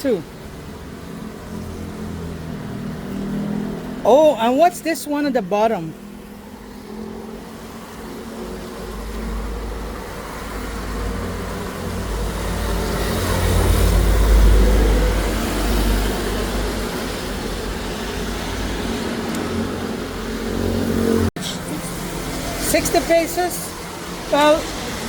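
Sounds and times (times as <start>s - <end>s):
vehicle passing close by: 0.6s - 4.2s, 5.9s - 25.0s.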